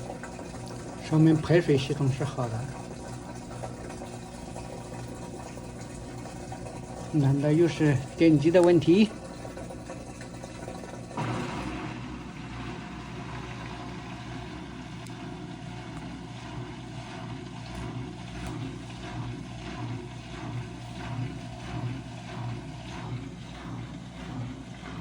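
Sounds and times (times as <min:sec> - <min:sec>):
washing machine hum and whir: 0:00.0 - 0:25.0.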